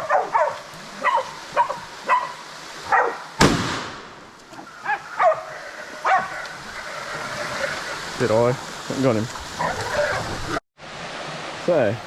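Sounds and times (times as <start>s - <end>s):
dogs barking: 0.0s - 3.3s, 4.8s - 6.8s, 9.6s - 10.3s
shotgun shot: 3.4s - 4.2s.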